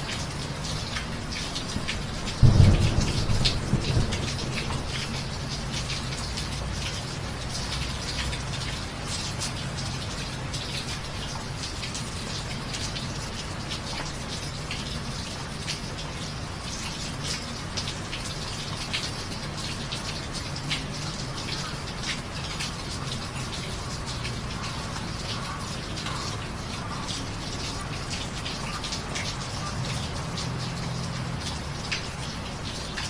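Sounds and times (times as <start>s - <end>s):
steady rain with close drops: 0.0s - 33.0s
low rumble of thunder: 2.0s - 7.2s.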